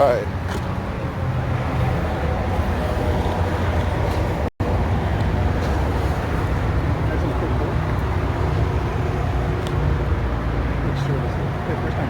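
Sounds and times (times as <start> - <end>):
low rumble of vehicle traffic: 0.0 - 12.0.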